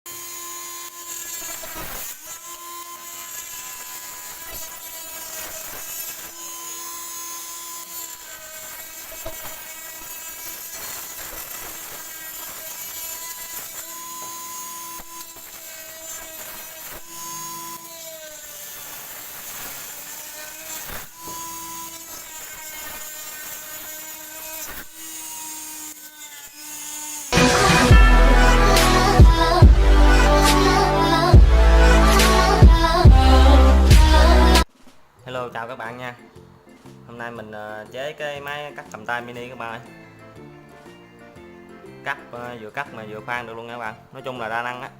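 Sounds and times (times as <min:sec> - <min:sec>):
power tool whining: 0:00.1 - 0:34.7.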